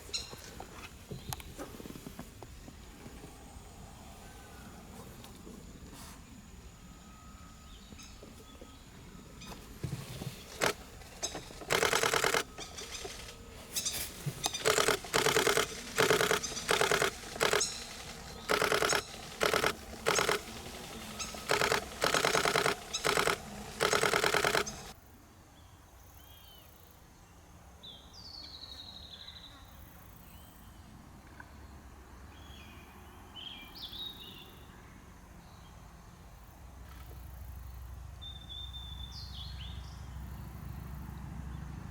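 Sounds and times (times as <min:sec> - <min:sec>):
camera shutter bursts: 0:10.4 - 0:13.4, 0:14.4 - 0:25.0.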